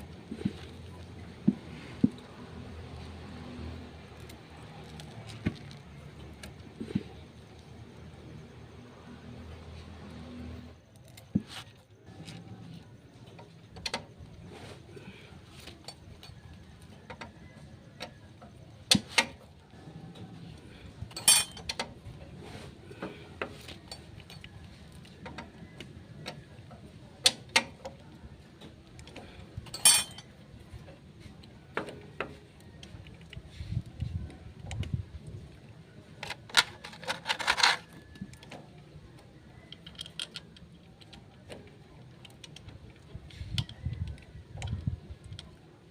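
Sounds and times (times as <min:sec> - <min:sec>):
metal parts and tools clinking: 0:20.1 - 0:21.9, 0:29.6 - 0:30.4, 0:36.2 - 0:38.4, 0:39.7 - 0:41.1.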